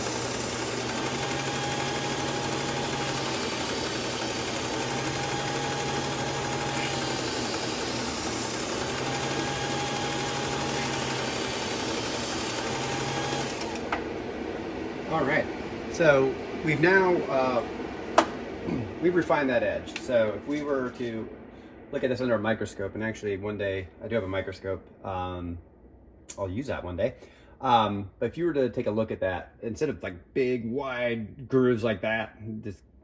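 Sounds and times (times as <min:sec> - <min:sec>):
belt sharpener humming: 0:00.0 - 0:14.2.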